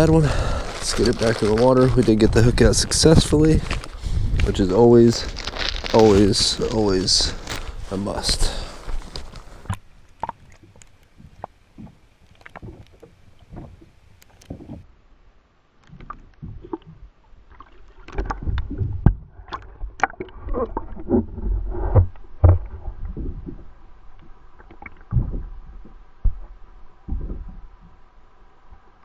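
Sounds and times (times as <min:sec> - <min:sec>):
low thumps: 0:11.2 - 0:14.8.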